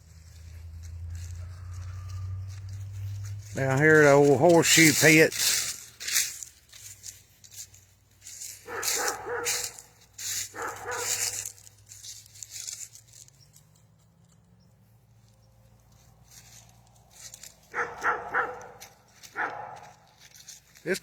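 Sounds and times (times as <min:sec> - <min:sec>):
dog barking: 0:08.6 - 0:11.5, 0:17.6 - 0:20.1.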